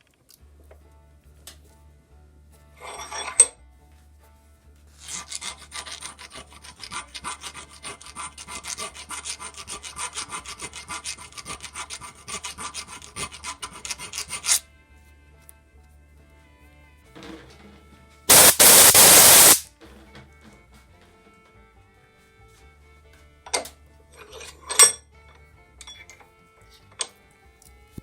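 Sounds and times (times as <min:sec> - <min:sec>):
hand file rasping on metal: 0:04.9 - 0:14.6.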